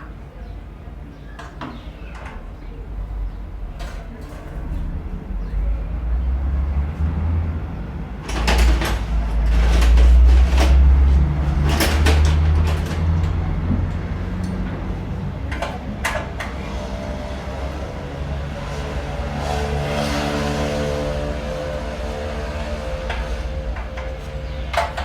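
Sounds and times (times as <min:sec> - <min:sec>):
clattering knocks and clicks: 0:08.2 - 0:25.0
generator engine humming: 0:09.0 - 0:25.0.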